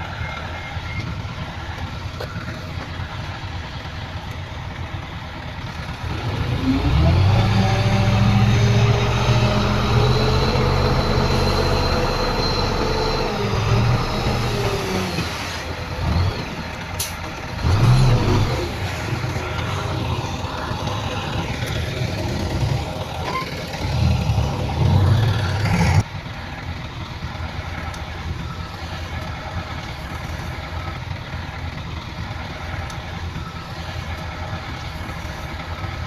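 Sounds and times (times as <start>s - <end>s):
heavy diesel engine revving: 5.1s - 26.1s.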